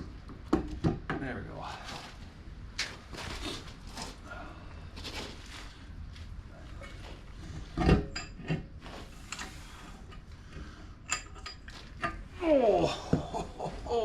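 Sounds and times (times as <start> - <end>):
metal parts clinking and scraping: 11.1 - 12.2.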